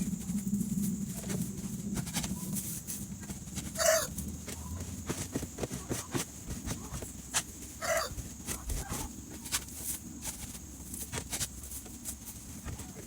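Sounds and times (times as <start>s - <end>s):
scraper on coop floor: 0.0s - 13.0s
chickens clucking: 1.1s - 9.6s.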